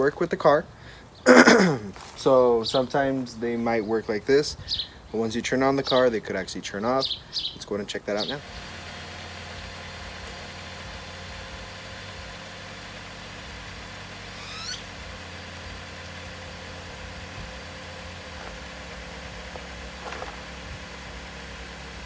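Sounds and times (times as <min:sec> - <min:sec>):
car engine idling: 0:08.2 - 0:22.0
short rising chirp: 0:14.3 - 0:14.9.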